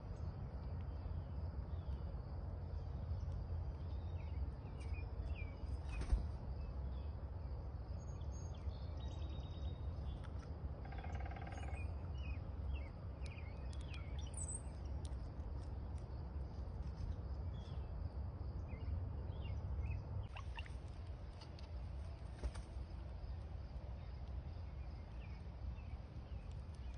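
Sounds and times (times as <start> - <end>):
small birds chirping: 0.0 - 26.9
steady low rumble: 11.6 - 26.9.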